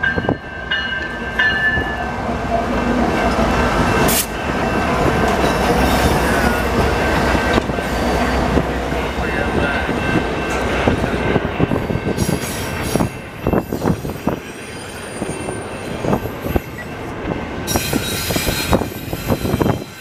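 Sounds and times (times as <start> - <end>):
freight train rolling past: 0.0 - 20.0
high wheel squeal: 12.1 - 17.0, 17.7 - 20.0.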